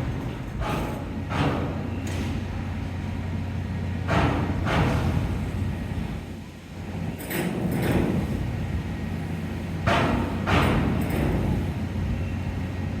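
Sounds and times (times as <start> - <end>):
ferry engines humming: 5.1 - 13.0.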